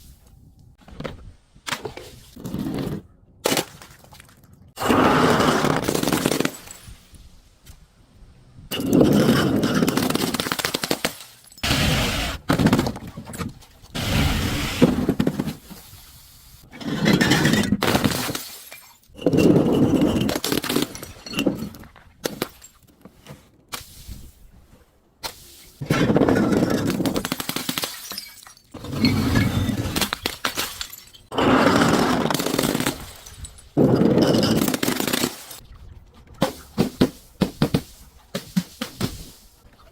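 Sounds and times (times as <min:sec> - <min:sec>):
glass bottles shattering: 0:17.0 - 0:22.8, 0:26.0 - 0:35.6.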